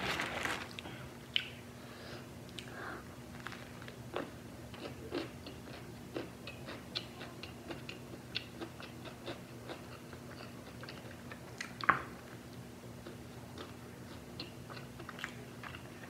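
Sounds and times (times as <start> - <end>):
person chewing food: 3.4 - 12.0, 13.0 - 16.0.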